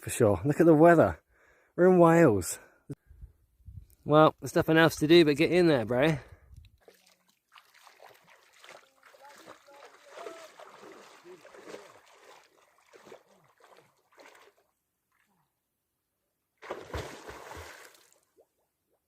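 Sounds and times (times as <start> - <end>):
water splashing and sloshing: 6.6 - 15.5, 16.6 - 18.6
water rush with deep thumps: 8.0 - 14.4, 16.6 - 17.9.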